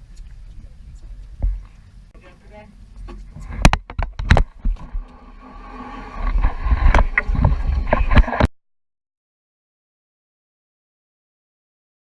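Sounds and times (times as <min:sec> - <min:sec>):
low boat rumble: 0:00.0 - 0:08.5.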